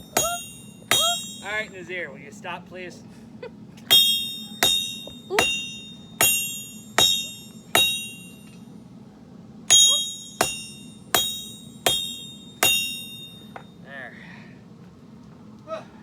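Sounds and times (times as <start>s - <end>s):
hammer striking steel on anvil: 0.0s - 1.9s, 3.9s - 8.6s, 9.7s - 13.8s.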